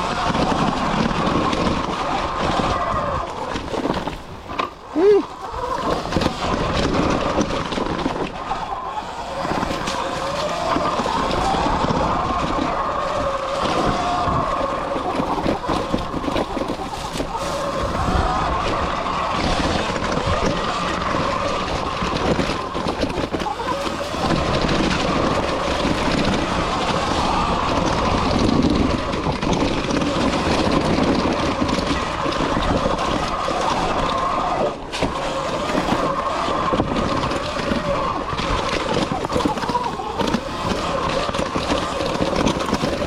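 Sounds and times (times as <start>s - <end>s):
bike clattering over rough ground: 0.0s - 43.0s
wind noise on microphone: 0.0s - 43.0s.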